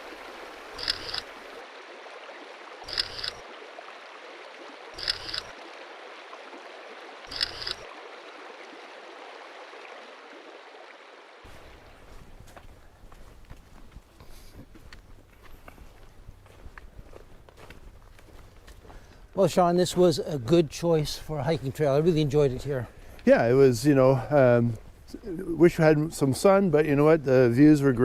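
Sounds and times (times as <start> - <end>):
babbling brook: 0.0 - 12.9
camera shutter click: 0.8 - 1.3, 7.3 - 7.8.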